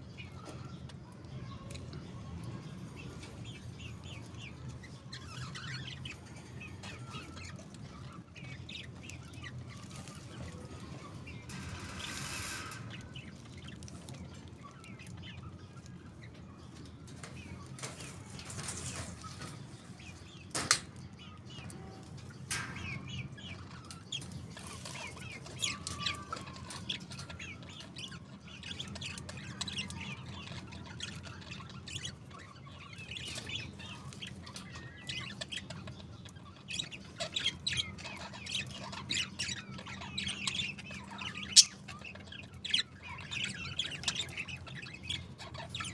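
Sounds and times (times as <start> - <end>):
budgerigars chirping: 22.5 - 45.9.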